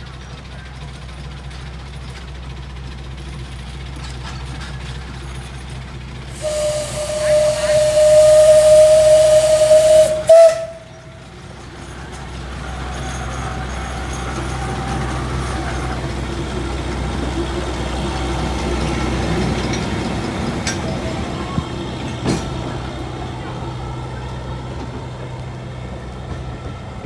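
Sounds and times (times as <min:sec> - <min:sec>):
steam whistle blast: 0:06.3 - 0:11.3.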